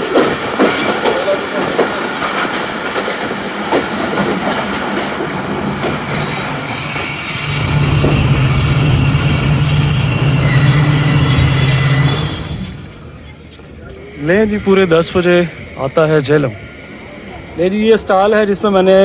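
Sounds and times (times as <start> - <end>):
train running on rails: 0.0 - 19.0
high-pitched wheel squeal: 4.5 - 17.8.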